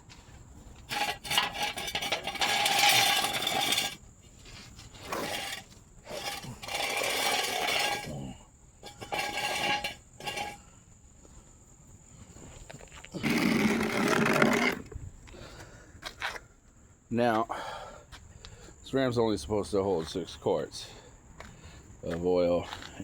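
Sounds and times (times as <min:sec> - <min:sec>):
metal jack stand scraping: 0:00.8 - 0:10.6, 0:13.2 - 0:15.0.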